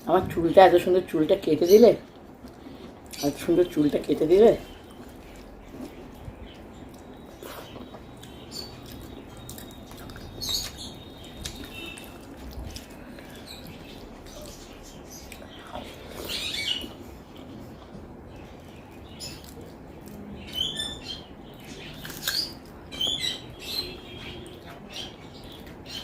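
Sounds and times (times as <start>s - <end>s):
person chewing food: 2.0s - 3.2s, 4.7s - 20.5s, 21.5s - 22.9s.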